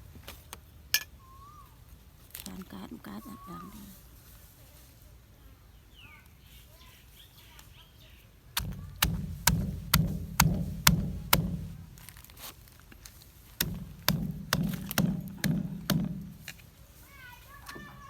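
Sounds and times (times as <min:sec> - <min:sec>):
pestle pounding in a mortar: 0:08.6 - 0:12.2, 0:13.6 - 0:16.6.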